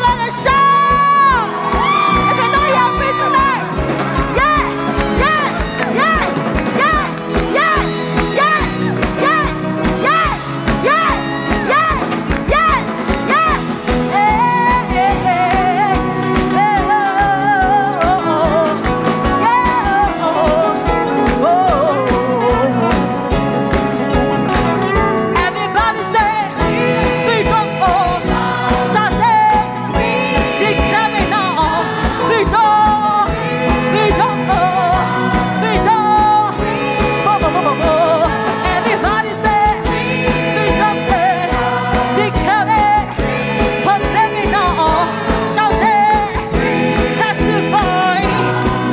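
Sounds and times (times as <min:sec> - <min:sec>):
full band with driving beat: 0:00.0 - 0:48.9
gospel singing voices: 0:00.0 - 0:48.9.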